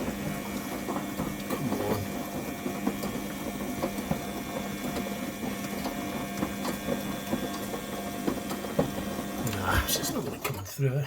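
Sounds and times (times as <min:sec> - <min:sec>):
washing machine hum: 0:00.0 - 0:11.0.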